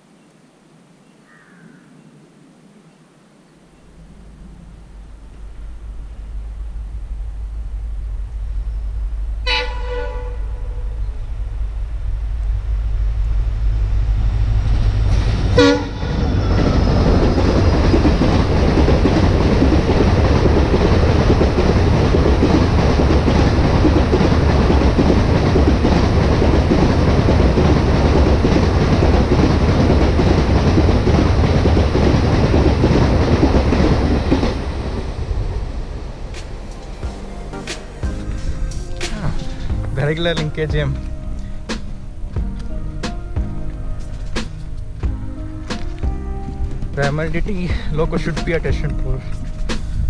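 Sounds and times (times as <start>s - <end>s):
locomotive engine rumble: 3.7s - 50.0s
train horn: 9.4s - 11.2s, 15.5s - 16.7s
wheels clattering on rail: 9.4s - 42.6s.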